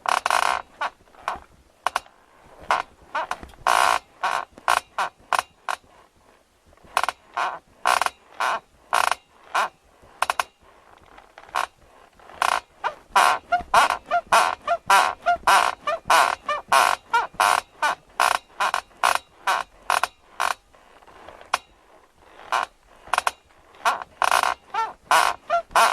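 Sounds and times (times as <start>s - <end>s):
bed squeaking: 12.4s - 20.5s, 22.4s - 25.9s.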